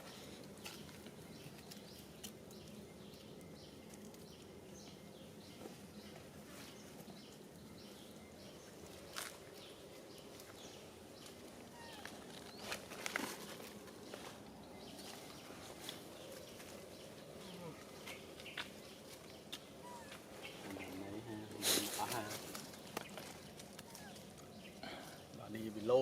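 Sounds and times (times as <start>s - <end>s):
faint animal chirps: 11.7s - 12.3s, 19.8s - 20.2s.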